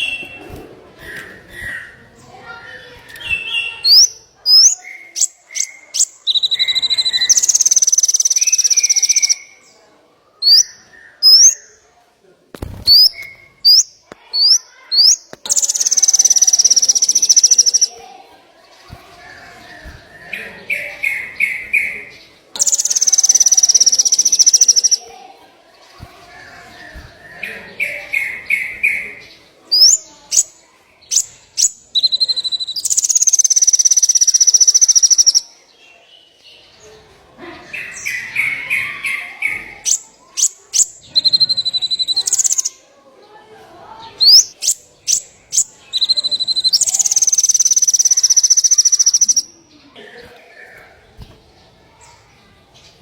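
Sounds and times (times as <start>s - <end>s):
songbird singing with trills: 1.0s - 9.8s, 10.4s - 11.8s, 12.9s - 18.0s, 19.0s - 25.1s, 26.7s - 36.6s, 37.8s - 42.8s, 44.2s - 49.8s.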